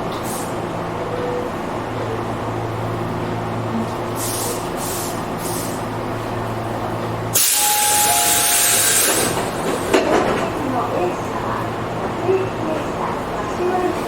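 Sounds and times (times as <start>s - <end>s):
electric train humming: 0.0s - 14.0s
rush of compressed air: 4.2s - 5.8s
short air hisses: 4.2s - 5.8s.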